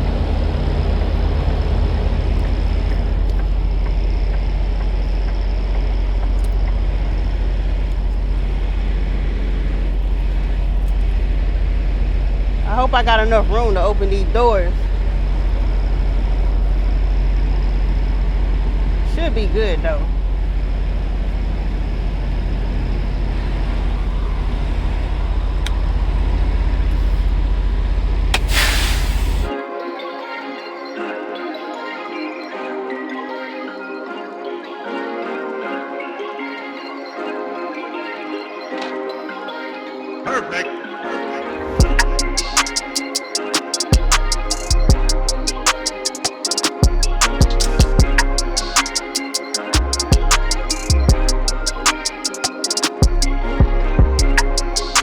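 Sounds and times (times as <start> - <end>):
diesel truck engine idling: 20.1 - 29.5
air brakes hissing: 28.4 - 29.5.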